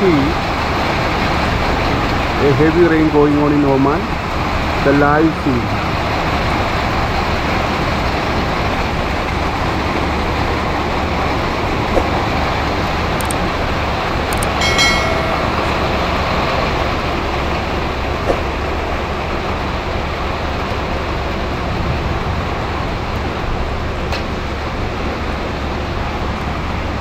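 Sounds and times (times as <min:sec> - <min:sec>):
short pitched ringing sound: 0:14.4 - 0:16.0.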